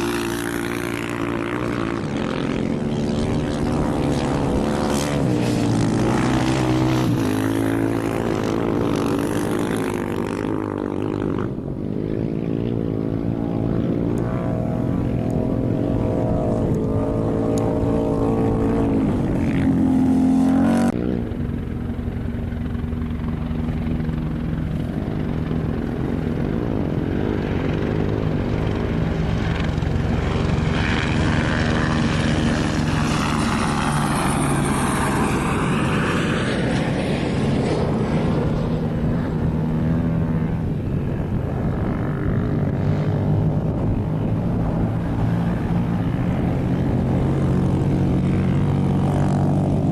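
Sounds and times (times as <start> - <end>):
vehicle passing: 0.0 - 21.9
engines running: 0.0 - 49.9.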